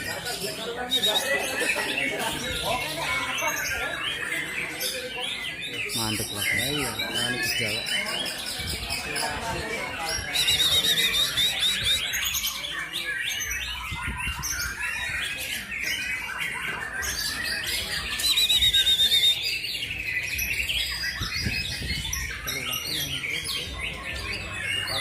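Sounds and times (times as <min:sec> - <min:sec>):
loud rapid bird trill: 0:00.0 - 0:25.0
songbirds whistling and chattering: 0:00.0 - 0:25.0.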